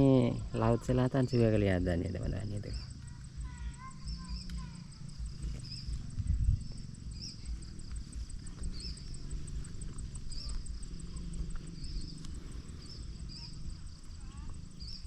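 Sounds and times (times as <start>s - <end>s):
insect trilling: 0.0s - 15.0s
short chirping calls: 2.5s - 7.7s
low rumble on microphone: 2.6s - 15.0s.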